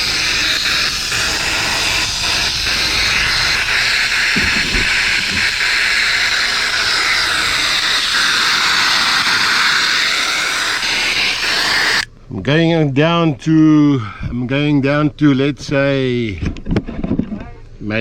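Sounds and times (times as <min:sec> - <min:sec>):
air hissing out of a tyre: 0:00.0 - 0:12.1.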